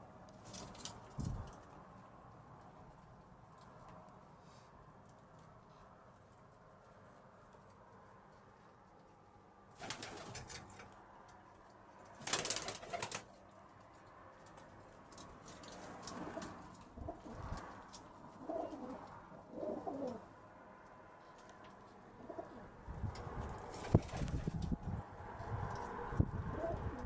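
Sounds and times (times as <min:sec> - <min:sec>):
pigeons cooing: 0:16.1 - 0:17.6, 0:18.3 - 0:20.3, 0:22.2 - 0:22.8, 0:26.3 - 0:27.0.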